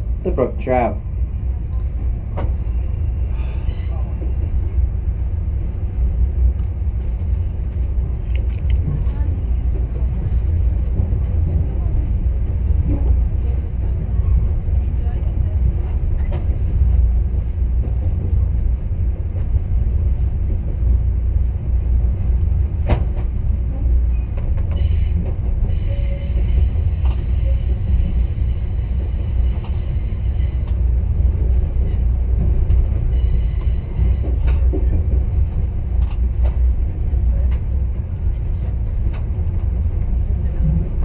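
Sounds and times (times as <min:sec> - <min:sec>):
train wheels rumbling on rails: 0:00.0 - 0:41.0
high-pitched wheel squeal: 0:24.8 - 0:30.9, 0:33.1 - 0:34.6.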